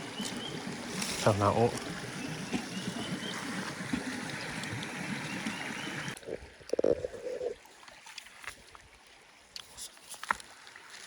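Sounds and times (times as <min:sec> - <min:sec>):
stream water running: 0:00.0 - 0:11.0.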